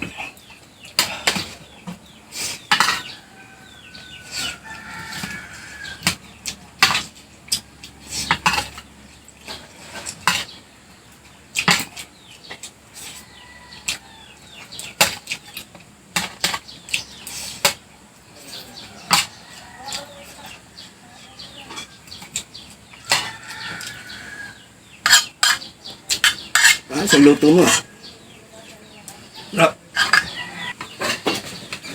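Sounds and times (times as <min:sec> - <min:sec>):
eating sounds: 0:00.0 - 0:31.9
cutlery scraping on a plate: 0:02.4 - 0:08.8, 0:09.4 - 0:10.6, 0:11.6 - 0:17.8, 0:18.4 - 0:20.6, 0:21.7 - 0:27.9, 0:29.9 - 0:31.9
chicken clucking: 0:18.2 - 0:31.9.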